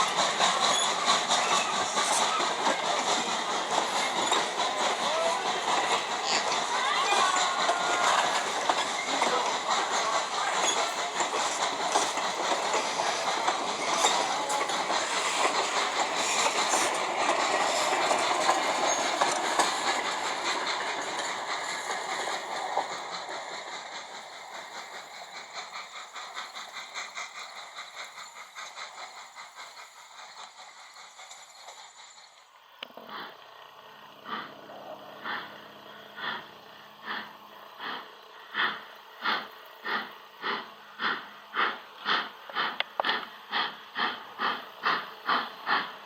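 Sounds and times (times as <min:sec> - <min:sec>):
wheels clattering on rails: 0:00.0 - 0:32.2
steam train passing: 0:00.0 - 0:46.0.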